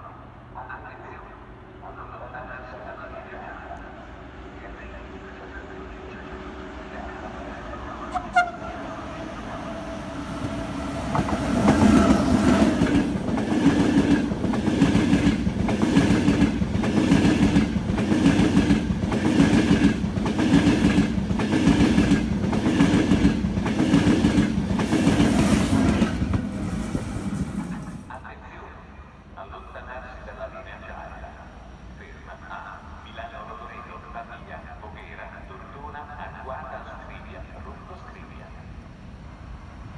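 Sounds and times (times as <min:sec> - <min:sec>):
train wheels clattering on rails: 0:10.4 - 0:28.0.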